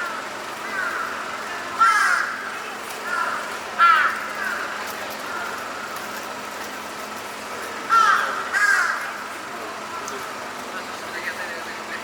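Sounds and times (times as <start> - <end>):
crow cawing: 0.0 - 6.0, 7.9 - 9.3
city traffic hum: 0.0 - 12.0.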